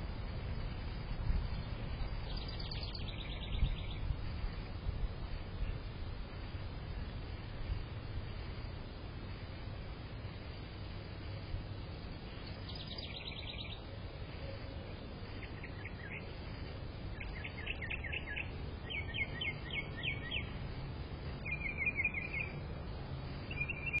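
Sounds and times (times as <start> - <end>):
low background rumble: 0.0 - 24.0
bird singing rapid trills: 1.5 - 4.2, 12.3 - 16.4, 17.1 - 20.6, 21.4 - 22.7, 23.4 - 24.0.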